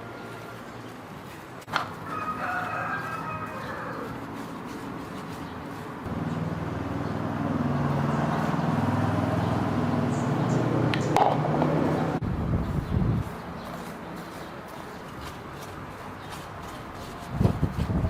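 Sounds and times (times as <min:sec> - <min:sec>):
engine humming: 0:03.6 - 0:16.9.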